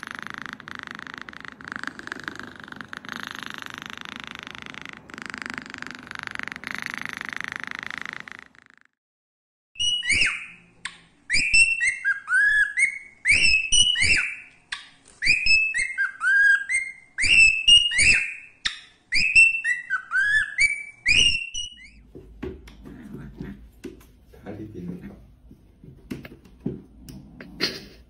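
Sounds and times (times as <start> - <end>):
cockatiel whistling: 9.8 - 10.6, 11.3 - 14.5, 15.2 - 22.0.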